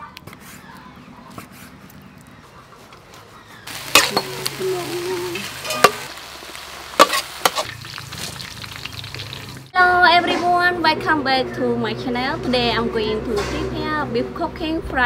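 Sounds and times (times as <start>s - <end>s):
meat sizzling in a hot pan: 3.7s - 9.7s.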